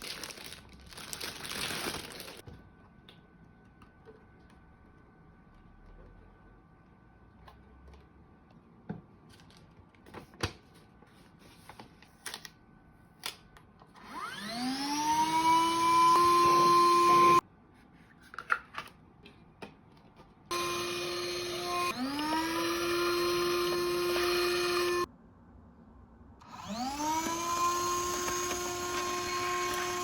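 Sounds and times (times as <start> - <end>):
vacuum cleaner motor whine: 13.9 - 17.4, 20.5 - 25.1, 26.4 - 30.0.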